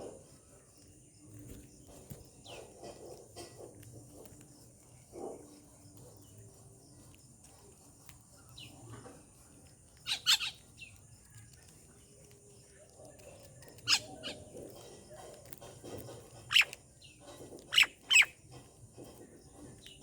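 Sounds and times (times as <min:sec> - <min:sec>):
birds calling: 0:10.0 - 0:11.6, 0:12.5 - 0:20.0.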